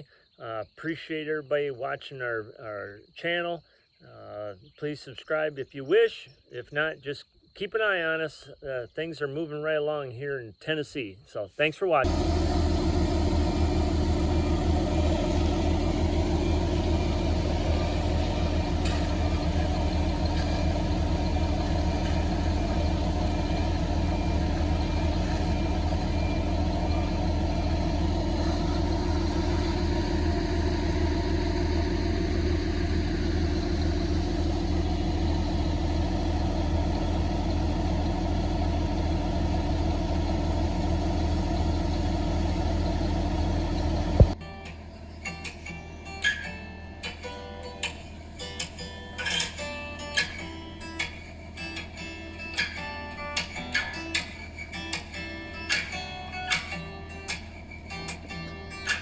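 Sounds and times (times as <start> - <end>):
truck engine running: 12.0 - 59.0.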